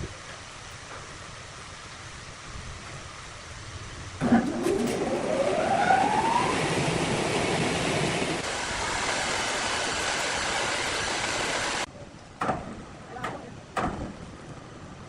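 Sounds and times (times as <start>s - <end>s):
short knocks: 12.4s - 14.3s.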